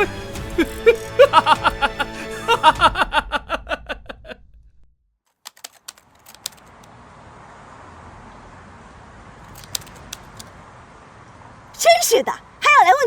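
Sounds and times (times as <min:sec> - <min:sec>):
man laughing: 0:00.0 - 0:04.6
sharp clicks: 0:05.4 - 0:06.9, 0:09.4 - 0:10.6.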